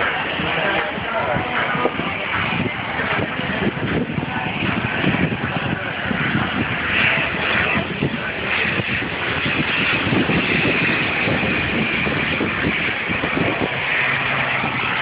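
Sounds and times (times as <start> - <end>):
propeller plane engines droning: 0.0 - 15.0
wind buffeting microphone: 0.0 - 15.0.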